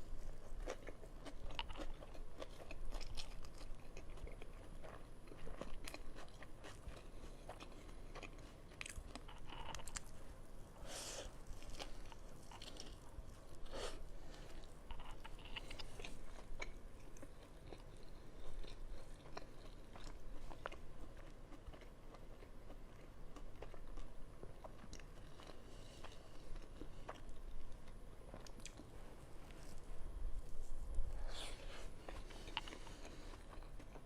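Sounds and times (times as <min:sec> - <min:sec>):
person chewing food: 0:00.0 - 0:34.0.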